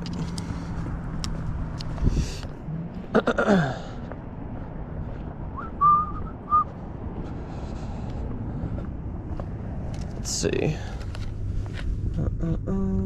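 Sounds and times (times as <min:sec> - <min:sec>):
person whistling short notes: 0:05.6 - 0:06.7.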